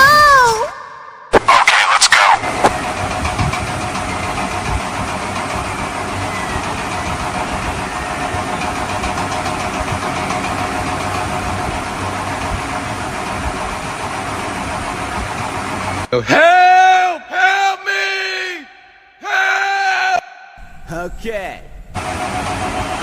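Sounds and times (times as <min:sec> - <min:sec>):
engine idling: 0:02.4 - 0:16.1, 0:20.6 - 0:23.0.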